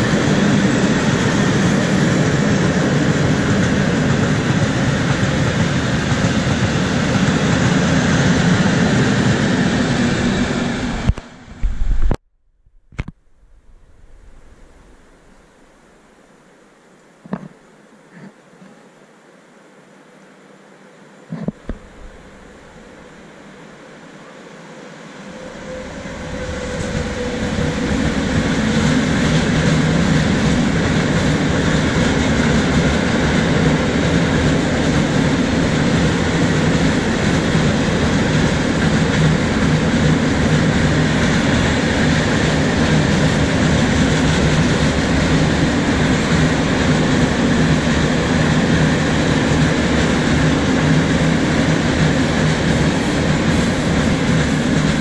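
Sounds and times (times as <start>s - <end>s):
freight train wheels on rails: 0.0s - 11.8s, 25.2s - 55.0s.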